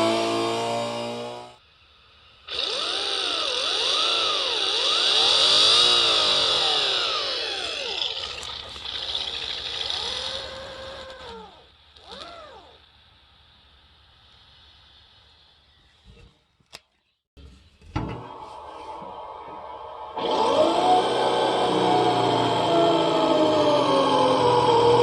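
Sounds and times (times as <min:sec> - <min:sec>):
synthetic engine sound revving: 0:03.9 - 0:12.8
high whine: 0:18.0 - 0:25.0.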